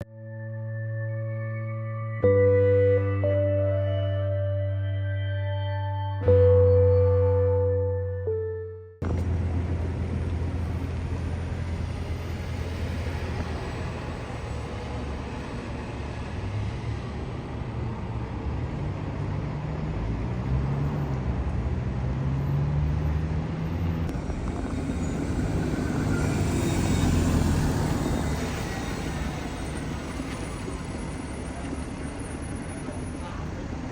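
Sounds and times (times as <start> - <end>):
vehicle low rumble: 2.2 - 33.9
motor tone rising and falling: 22.3 - 31.0.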